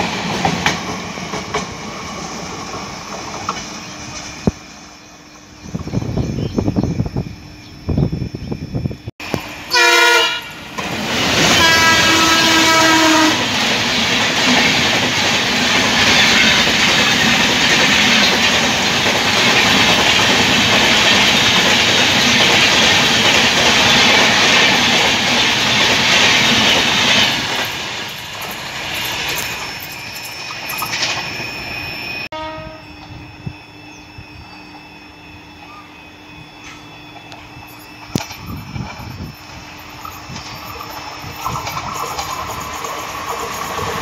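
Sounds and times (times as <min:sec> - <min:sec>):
express train passing at speed: 0:00.0 - 0:44.0
train horn blasts: 0:09.7 - 0:13.5, 0:32.3 - 0:34.5.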